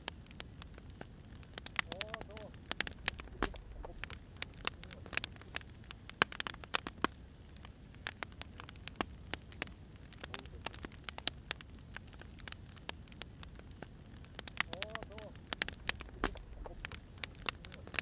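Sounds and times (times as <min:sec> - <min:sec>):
wood fire crackling: 0:00.0 - 0:18.0
low steady rumble: 0:02.0 - 0:06.2, 0:13.3 - 0:18.0.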